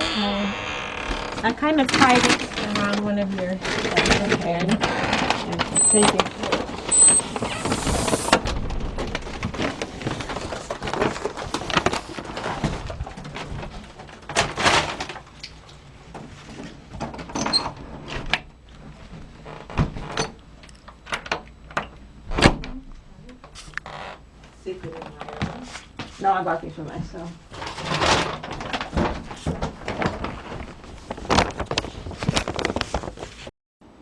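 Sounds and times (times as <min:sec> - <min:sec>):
shopping bag rustling: 0:01.4 - 0:13.6, 0:29.7 - 0:33.5
knocks clicks and thuds: 0:03.9 - 0:15.1.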